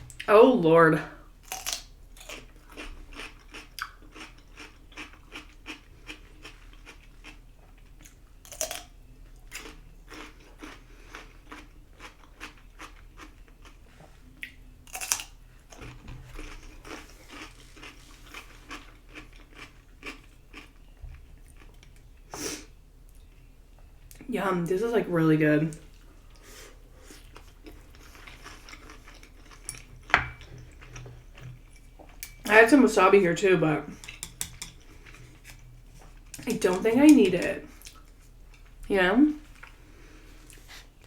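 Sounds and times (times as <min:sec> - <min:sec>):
wet chewing crunches: 0:14.4 - 0:20.8.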